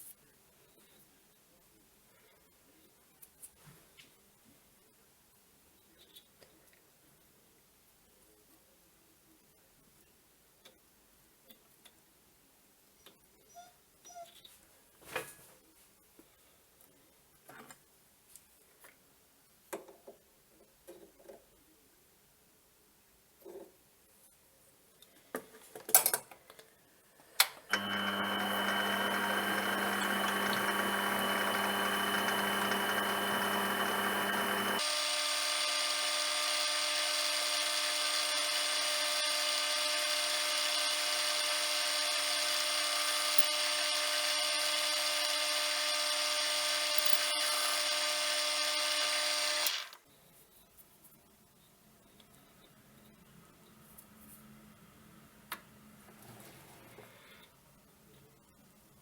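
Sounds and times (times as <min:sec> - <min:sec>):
lathe motor humming: 0:27.7 - 0:50.0.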